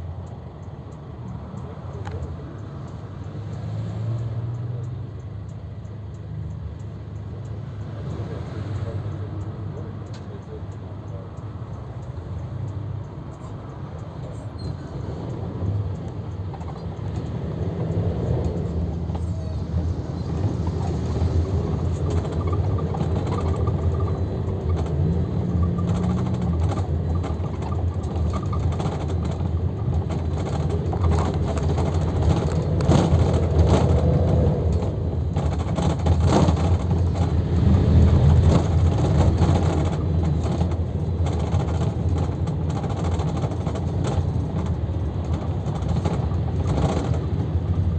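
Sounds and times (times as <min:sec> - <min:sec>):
minibus engine rumble: 0:00.0 - 0:47.9
road noise: 0:00.0 - 0:47.9
knocks and rattles: 0:16.0 - 0:47.9.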